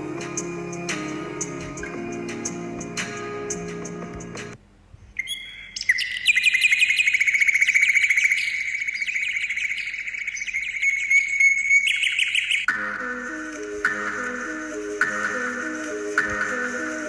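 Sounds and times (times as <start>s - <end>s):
bird trilling high chirps: 5.2s - 12.7s.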